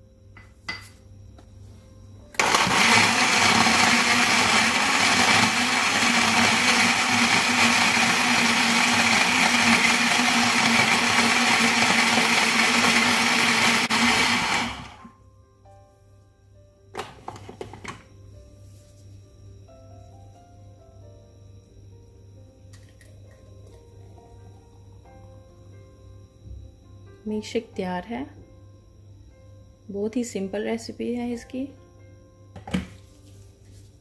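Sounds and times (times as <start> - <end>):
electric blender running: 2.4 - 15.1.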